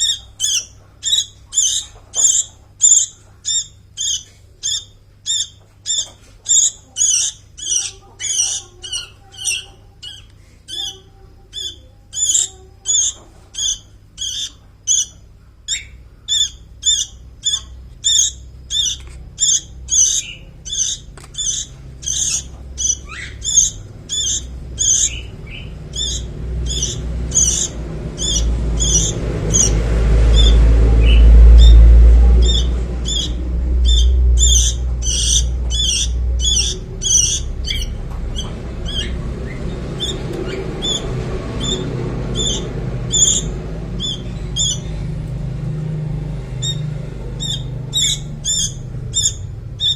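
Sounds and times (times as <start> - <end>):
bird chick chirping: 0.0 - 45.5, 46.5 - 49.9
loud low rumble: 16.0 - 49.9.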